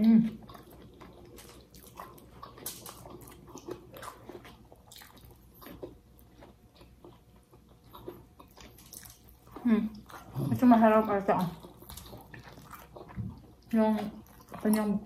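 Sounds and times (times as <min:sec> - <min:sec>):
chewing with wet lip smacks: 0:00.3 - 0:15.0.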